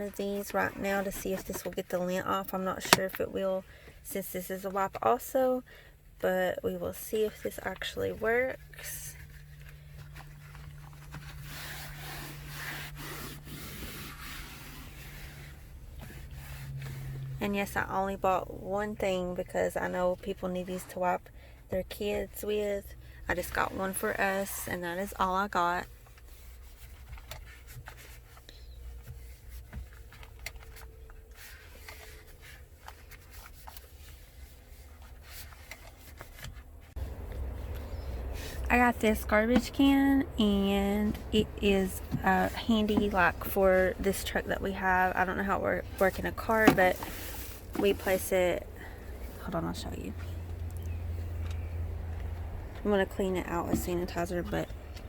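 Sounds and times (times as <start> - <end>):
wipe scrubbing interior trim: 7.2 - 19.3, 21.9 - 55.0
faint rubbing of a wipe: 8.7 - 17.4.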